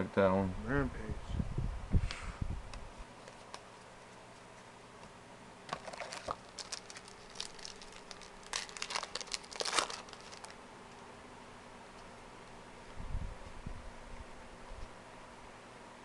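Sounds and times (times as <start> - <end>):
wrapper rustling and crinkling: 5.7 - 10.6.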